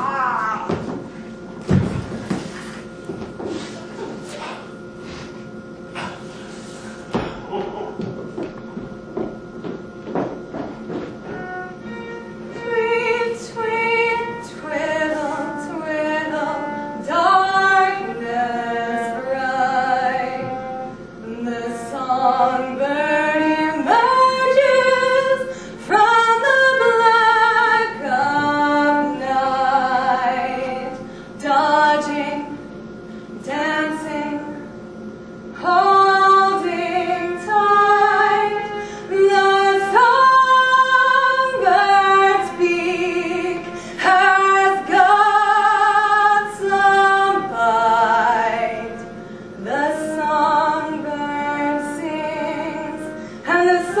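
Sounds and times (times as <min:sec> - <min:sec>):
woman singing: 0:00.0 - 0:01.0, 0:12.5 - 0:32.6, 0:33.4 - 0:34.7, 0:35.6 - 0:54.0.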